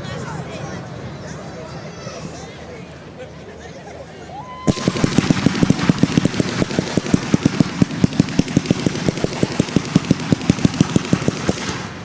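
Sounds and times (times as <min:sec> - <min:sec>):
fireworks barrage firing: 0:04.7 - 0:12.0.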